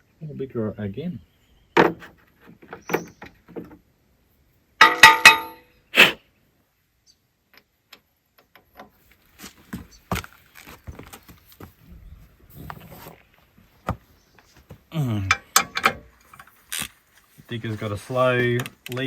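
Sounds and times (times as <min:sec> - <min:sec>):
steel spanners clinking: 0:04.8 - 0:05.6
metallic jangle with ringing: 0:04.8 - 0:05.7.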